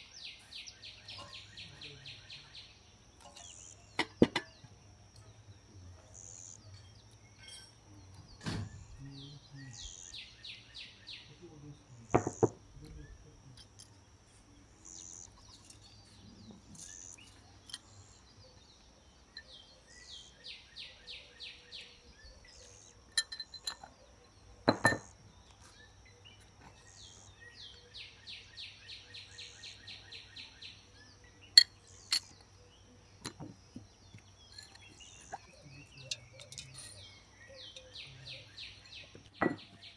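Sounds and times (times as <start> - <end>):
sharp knocks and clinks: 3.2 - 5.4, 6.7 - 8.9, 12.1 - 14.6, 22.6 - 24.0, 24.6 - 25.8, 31.5 - 32.6, 33.2 - 38.1, 38.8 - 39.9.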